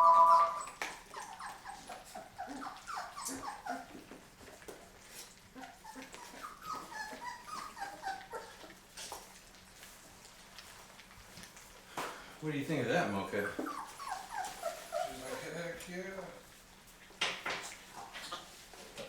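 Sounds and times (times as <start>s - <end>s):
puppies whimpering and squeaking: 0.0s - 9.3s, 12.8s - 18.9s.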